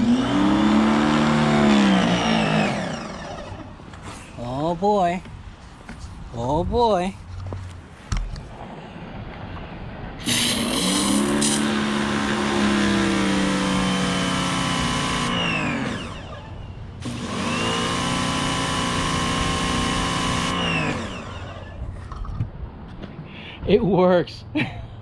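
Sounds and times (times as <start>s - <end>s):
electric pressure washer running: 0.0s - 3.9s, 10.2s - 21.8s
pressure washer spray hissing: 10.2s - 12.2s.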